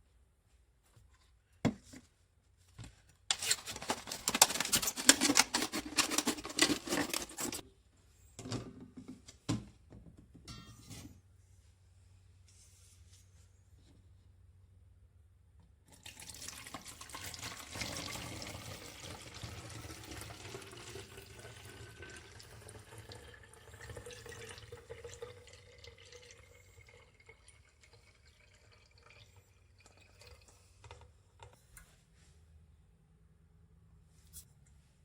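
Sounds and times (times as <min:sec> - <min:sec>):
tap water filling container: 0:15.9 - 0:31.2.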